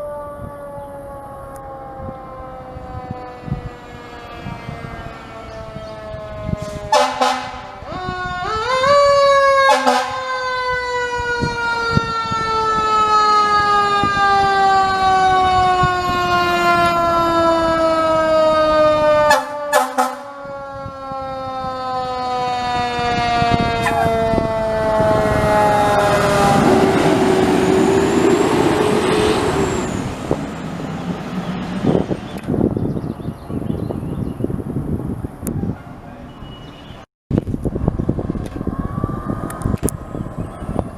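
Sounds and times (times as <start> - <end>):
fire truck siren wailing: 0.0 - 36.5, 37.7 - 40.9
truck engine and road noise: 0.0 - 40.9
short horn blasts: 6.6 - 7.8, 9.7 - 10.2, 19.3 - 20.3.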